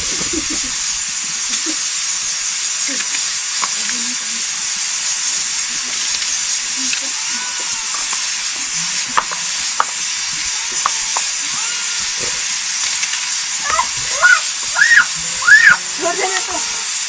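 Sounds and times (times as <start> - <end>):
food frying in a pan: 0.0 - 17.0
utensil knocking: 6.9 - 16.8
high rising and falling calls: 13.3 - 16.9.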